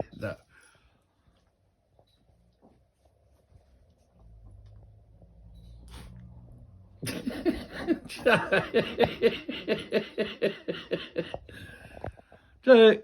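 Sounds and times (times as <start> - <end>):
person laughing hard: 7.0 - 11.6.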